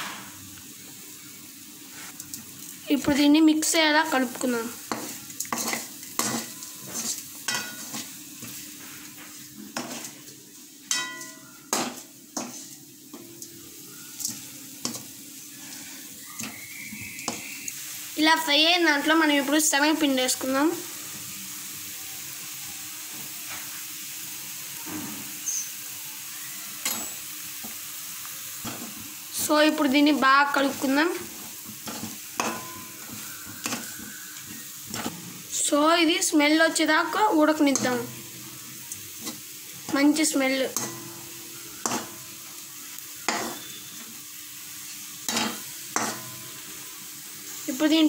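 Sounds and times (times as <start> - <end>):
masala frying in oil: 0.0 - 48.0
steel spoon striking pan: 4.8 - 8.0, 10.9 - 13.4, 26.8 - 27.2, 31.9 - 34.1, 37.0 - 38.5, 40.7 - 42.3, 43.3 - 43.8, 45.3 - 46.6.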